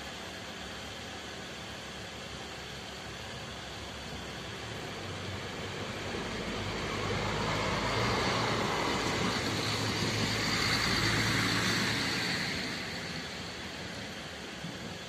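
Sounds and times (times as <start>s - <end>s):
vehicle driving past: 5.3s - 14.0s.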